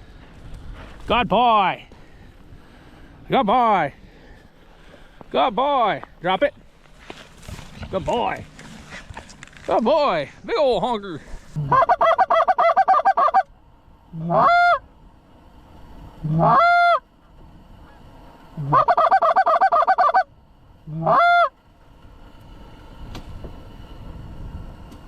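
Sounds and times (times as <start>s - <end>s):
wind noise: 0.0s - 12.6s, 13.2s - 25.0s
goose call clucks and honks: 11.6s - 13.5s, 14.2s - 14.8s, 16.2s - 17.1s, 18.6s - 20.3s, 20.9s - 21.6s.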